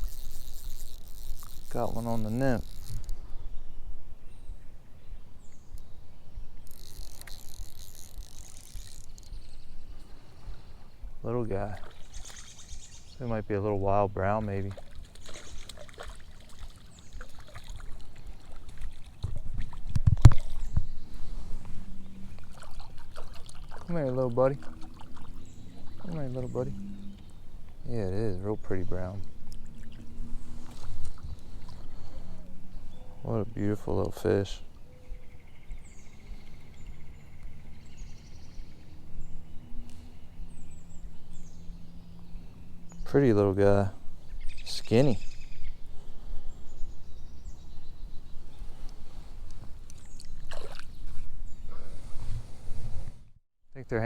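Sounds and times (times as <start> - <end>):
songbirds chirping: 0.0 - 52.8
water splashing and sloshing: 11.6 - 12.8, 14.3 - 27.3, 29.2 - 32.1, 49.5 - 51.4.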